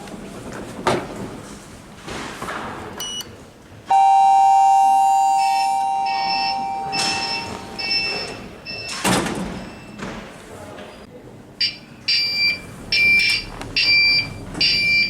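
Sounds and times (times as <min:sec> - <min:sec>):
two-note elevator chime: 0:03.9 - 0:08.2
repeated high beeps: 0:03.9 - 0:09.0
short electronic beep: 0:03.9 - 0:09.0.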